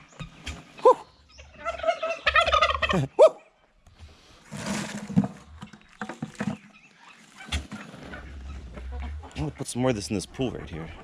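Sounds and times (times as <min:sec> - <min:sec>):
geese honking: 0:00.3 - 0:03.0, 0:06.9 - 0:11.0.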